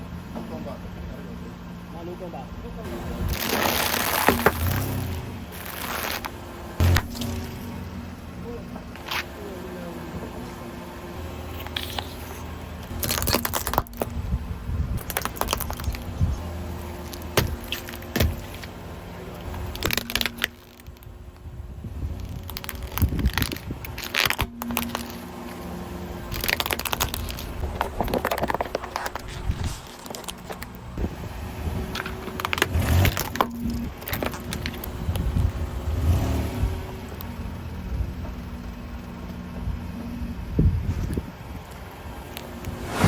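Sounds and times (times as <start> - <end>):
car running hum: 0.0 - 43.0
tyre crushing crunchy food: 3.2 - 7.7, 11.7 - 14.2, 15.0 - 16.1, 22.2 - 25.6, 26.3 - 30.8.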